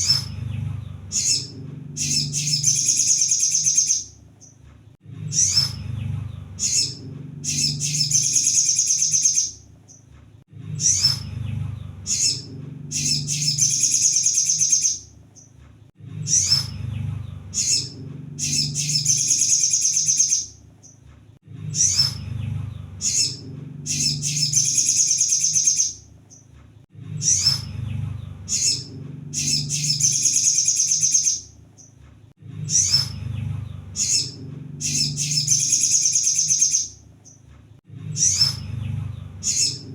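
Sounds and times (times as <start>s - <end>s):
low rumble: 0.0s - 2.9s, 4.2s - 8.4s, 10.4s - 14.0s, 15.8s - 19.2s, 21.4s - 24.6s, 26.8s - 30.2s, 32.3s - 35.7s, 37.8s - 39.9s
bird song with high trill: 0.0s - 10.1s, 10.7s - 21.0s, 21.6s - 26.5s, 27.1s - 32.0s, 32.6s - 37.4s, 38.0s - 39.9s.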